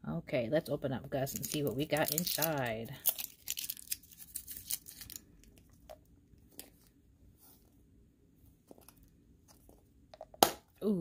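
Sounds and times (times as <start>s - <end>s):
packaging clicks and crinkles: 1.3s - 5.9s.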